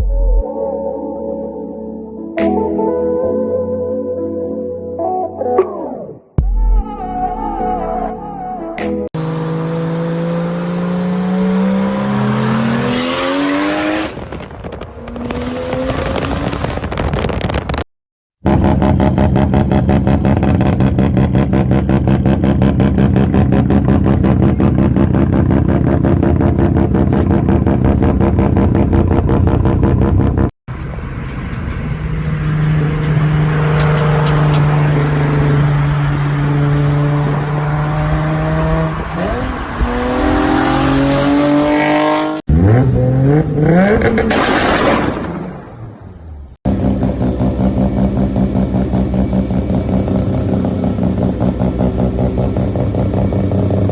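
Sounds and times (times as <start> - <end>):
loud car engine revving: 9.2 - 17.0, 18.4 - 30.5, 31.7 - 45.7, 46.7 - 53.9
exhaust cracks: 14.0 - 17.8, 43.9 - 45.9.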